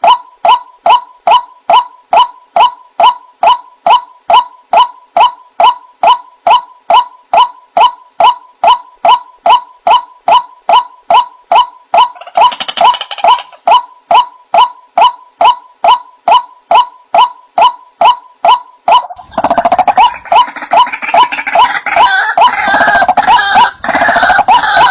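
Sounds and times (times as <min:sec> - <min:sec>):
harsh fast bird chattering: 0:05.2 - 0:24.9
waterhen calling: 0:18.9 - 0:24.9.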